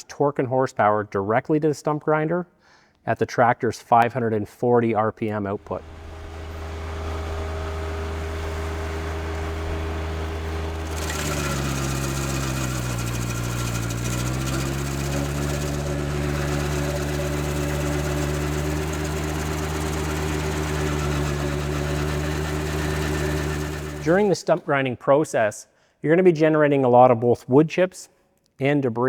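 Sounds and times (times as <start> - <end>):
tractor engine running: 5.5 - 24.5
stump grinder grinding: 5.6 - 24.6.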